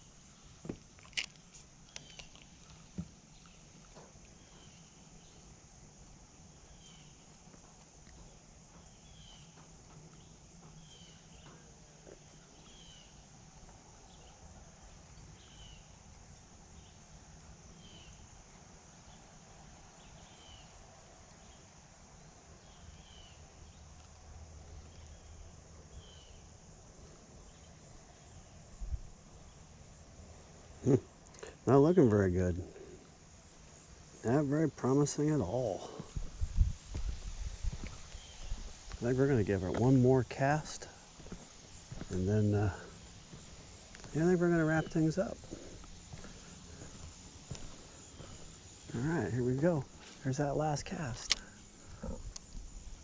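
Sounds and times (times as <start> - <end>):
high insect drone: 0.0 - 53.0
bird chirping: 1.8 - 5.5, 8.1 - 13.3, 14.0 - 17.1, 37.8 - 40.0, 40.8 - 52.3
sharp clicks: 51.1 - 51.6.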